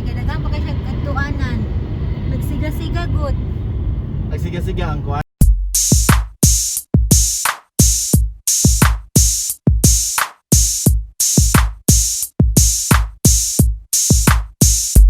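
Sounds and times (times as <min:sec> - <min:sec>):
drum machine kick and hi-hat beat: 0:05.4 - 0:15.0.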